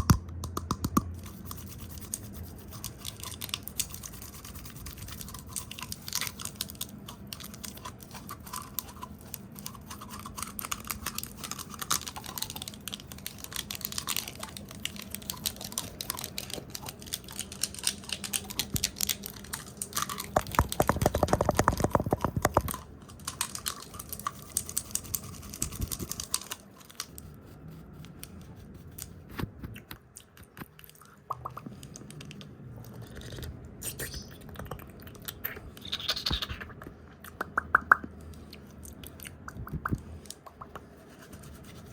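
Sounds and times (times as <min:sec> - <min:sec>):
asmr tapping: 0:00.0 - 0:01.2.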